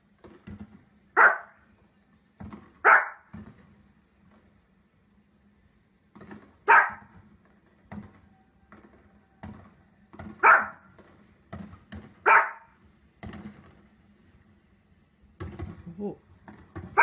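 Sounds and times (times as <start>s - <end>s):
dog barking: 1.2s - 1.6s, 2.8s - 3.3s, 6.6s - 7.1s, 10.4s - 10.9s, 12.2s - 12.8s.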